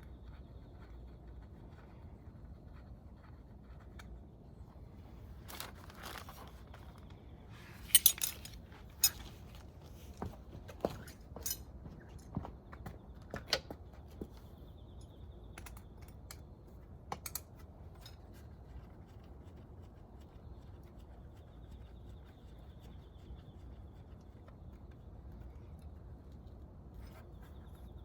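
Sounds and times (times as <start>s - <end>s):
faint workspace hum: 0.0s - 28.0s
clicks of tools and engine parts: 7.8s - 9.4s.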